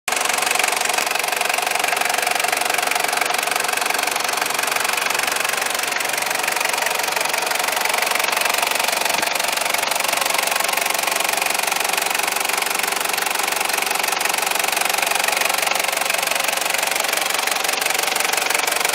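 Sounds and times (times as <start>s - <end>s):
diesel engine idling: 0.1s - 18.9s.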